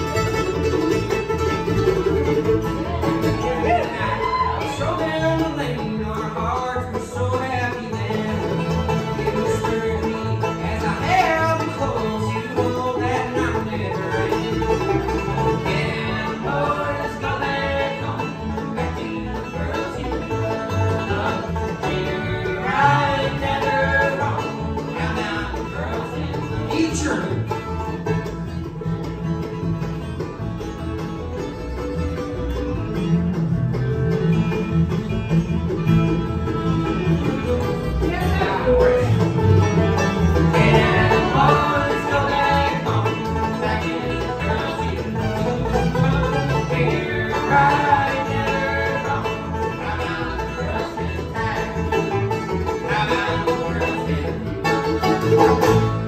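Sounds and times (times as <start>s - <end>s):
bluegrass band with banjo: 0.0s - 56.0s.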